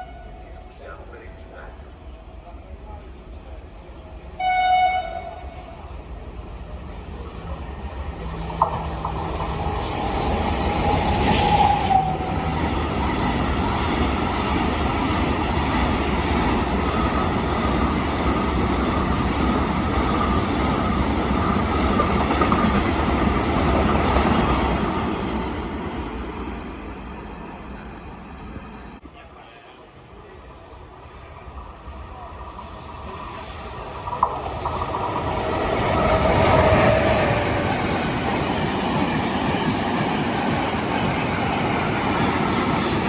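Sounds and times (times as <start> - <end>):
train wheels on rails: 0.7 - 29.0, 31.1 - 43.0.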